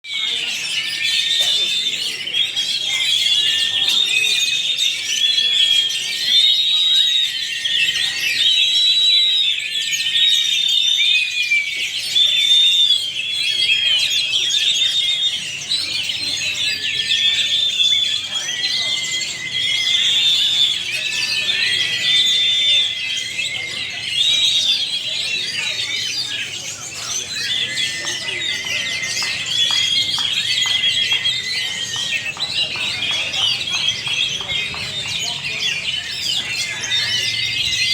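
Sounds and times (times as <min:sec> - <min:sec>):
birds singing whistled phrases: 0:00.0 - 0:37.9.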